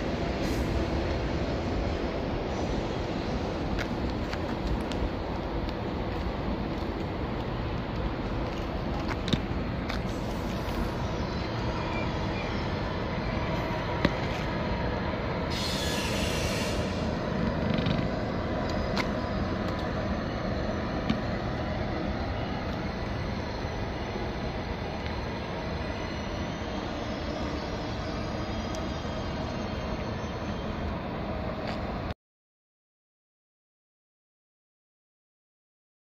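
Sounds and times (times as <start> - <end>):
train rumbling over tracks: 0.0 - 32.2
high-pitched wheel squeal: 15.5 - 17.1.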